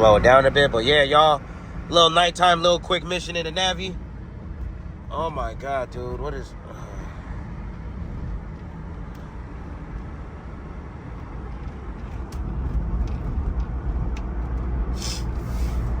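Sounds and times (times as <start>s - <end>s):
engine rumbling as vehicle drives: 0.0s - 16.0s
short hiss: 15.0s - 16.0s.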